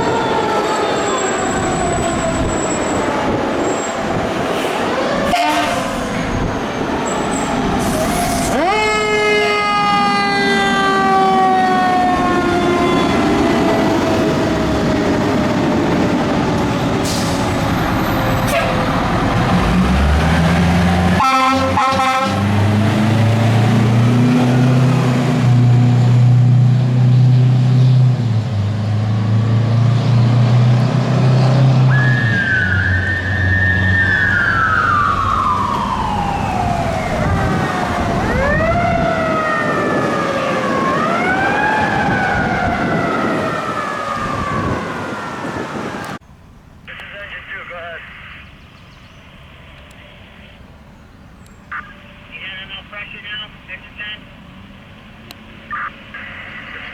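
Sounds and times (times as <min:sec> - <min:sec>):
siren rising and falling: 0:00.0 - 0:26.0, 0:29.5 - 0:46.2
fire truck engine revving: 0:00.0 - 0:46.2
horn blast: 0:04.7 - 0:06.2, 0:21.2 - 0:22.6.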